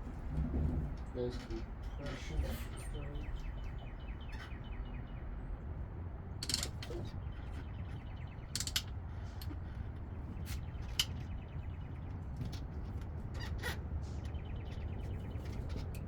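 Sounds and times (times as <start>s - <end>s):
metallic clicks of hand tools: 6.4s - 6.9s.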